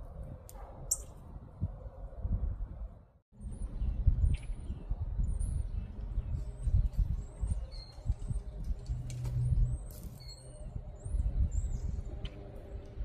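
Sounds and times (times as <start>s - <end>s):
small songbirds chirping: 3.4s - 13.0s.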